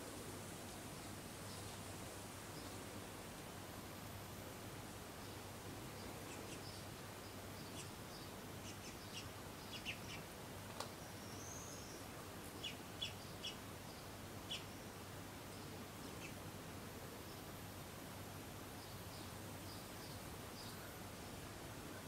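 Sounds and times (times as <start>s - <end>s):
outdoor background noise: 0.0s - 22.0s
birds chirping: 5.2s - 10.3s, 11.0s - 14.9s.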